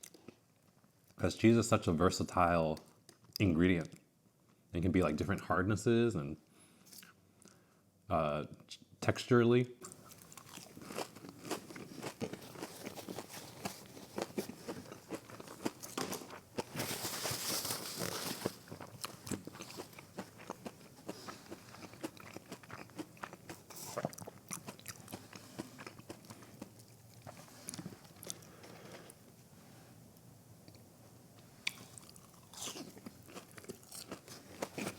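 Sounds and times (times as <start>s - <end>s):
crunchy chewing of fried food: 9.8s - 29.6s, 30.6s - 34.9s.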